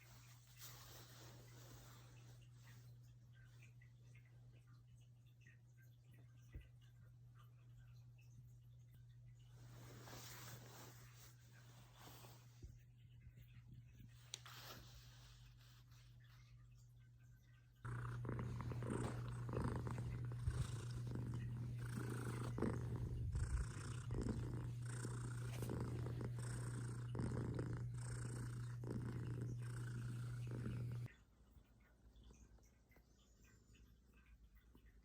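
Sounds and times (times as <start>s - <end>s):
cat purring: 9.0s - 16.7s, 17.8s - 31.1s.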